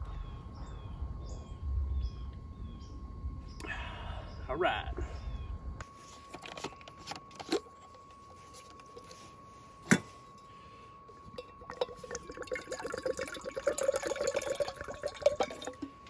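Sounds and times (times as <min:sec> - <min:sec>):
water pouring into a pot: 0:11.4 - 0:15.9.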